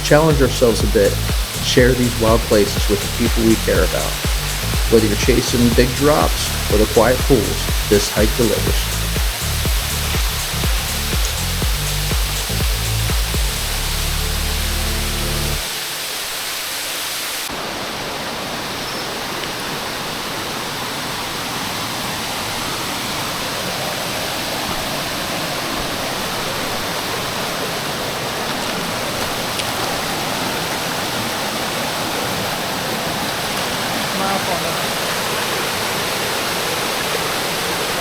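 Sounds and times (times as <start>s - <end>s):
background music: 0.0s - 15.7s
waterfall rushing: 0.0s - 38.0s.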